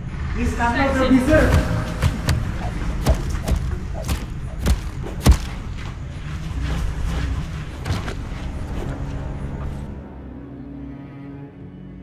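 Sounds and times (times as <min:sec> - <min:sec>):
heavy thuds: 0:01.3 - 0:06.1
soft knocks: 0:01.5 - 0:05.5.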